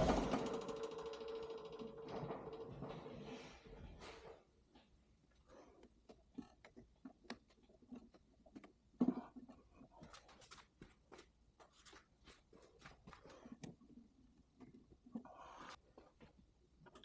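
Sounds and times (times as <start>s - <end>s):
tools and parts clicking and knocking: 0.0s - 3.2s.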